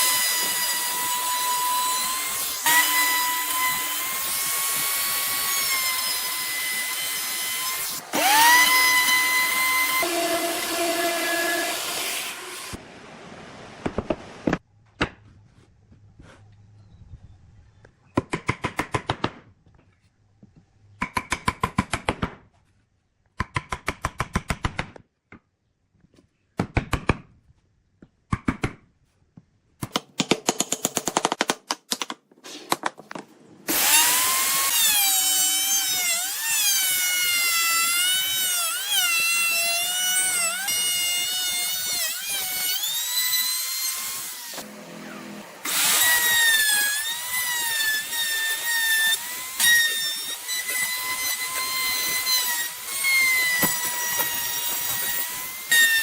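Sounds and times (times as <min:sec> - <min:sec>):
power tool working wood: 0:00.0 - 0:12.8, 0:33.7 - 0:56.0.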